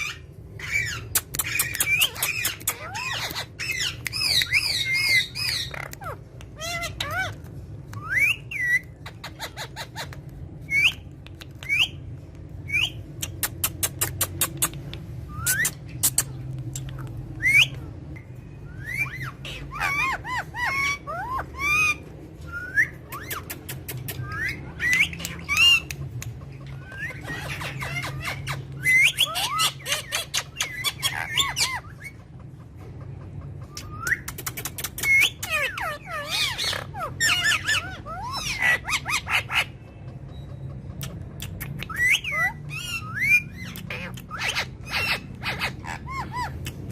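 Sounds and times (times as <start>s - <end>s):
parrot squawking and whistling: 0.0s - 32.2s, 33.7s - 39.8s, 41.1s - 46.9s
parrot rapid clicks: 34.0s - 35.3s.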